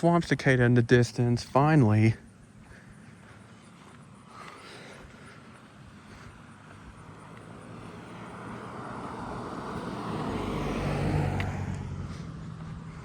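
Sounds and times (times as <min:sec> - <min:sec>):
car passing by: 0:05.6 - 0:13.0.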